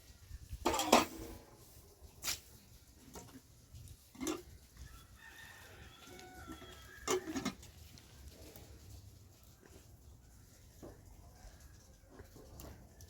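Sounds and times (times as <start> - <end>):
rooster crowing faintly: 4.8 - 7.6.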